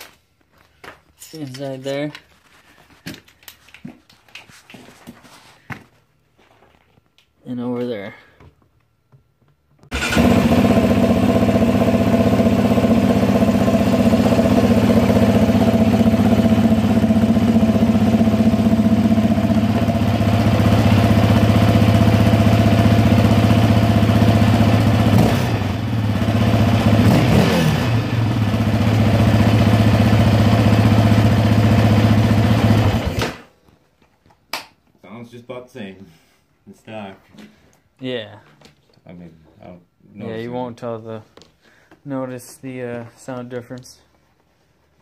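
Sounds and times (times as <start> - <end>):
atv engine idling: 10.0 - 33.2.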